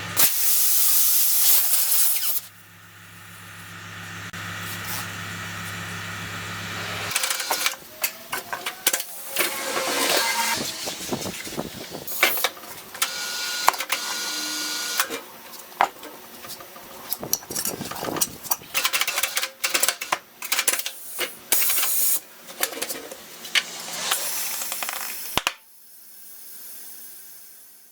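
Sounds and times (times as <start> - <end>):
air hiss bursts: 0.2 - 2.5, 23.4 - 27.6.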